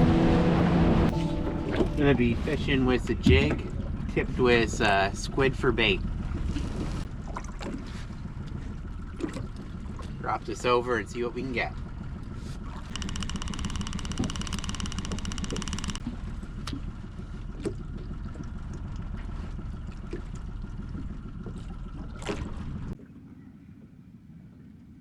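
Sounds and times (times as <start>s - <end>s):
wind and water rumble: 0.0s - 15.2s, 15.9s - 25.0s
fishing reel whirring: 12.9s - 16.1s.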